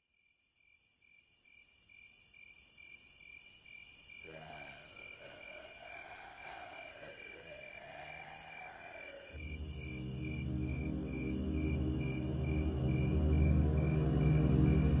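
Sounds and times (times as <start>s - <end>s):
crickets chirping: 0.0s - 15.0s
soft wavering drone: 9.3s - 15.0s.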